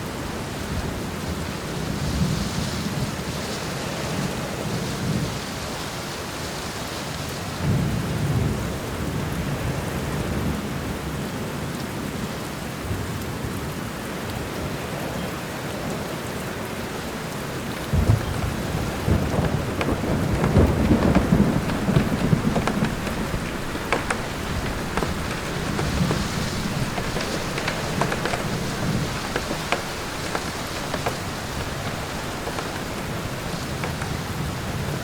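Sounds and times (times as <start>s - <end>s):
steady rain in a forest: 0.0s - 35.0s
low thunder rumbling: 17.4s - 35.0s.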